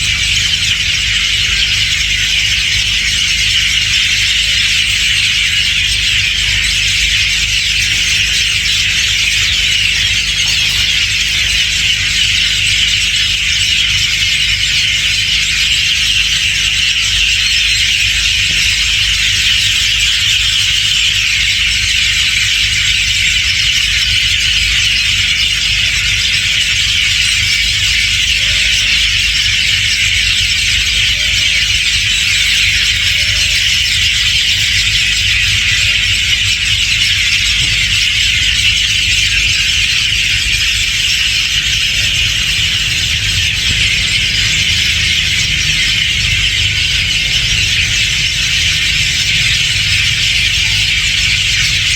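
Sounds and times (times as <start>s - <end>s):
many birds chattering: 0.0s - 51.9s
steady low rumble: 39.3s - 51.9s.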